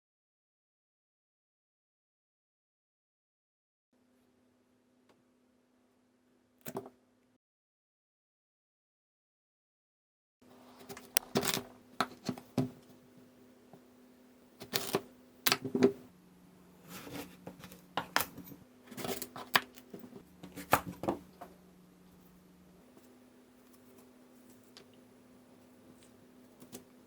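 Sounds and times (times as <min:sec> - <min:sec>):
faint steady hum: 0:10.4 - 0:27.0.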